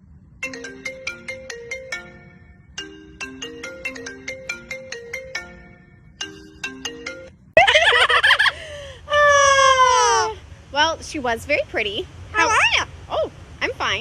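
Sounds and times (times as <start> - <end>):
marimba phone ringtone: 0.4 - 7.5
parrot squawking: 12.4 - 12.9.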